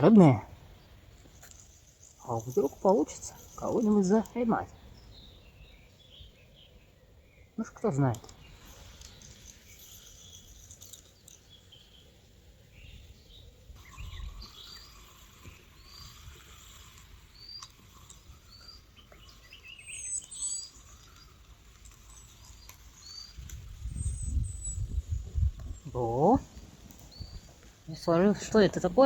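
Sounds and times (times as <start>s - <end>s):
bird chirping: 0.0s - 29.0s
faint outdoor background noise: 0.0s - 29.0s.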